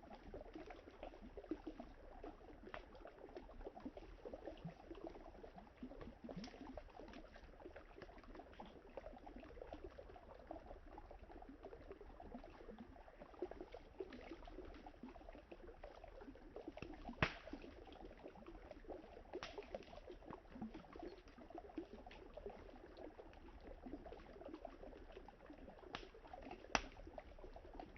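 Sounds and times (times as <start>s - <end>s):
river water lapping and trickling: 0.0s - 27.9s
campfire wood crackling: 16.9s - 17.6s, 26.7s - 27.0s.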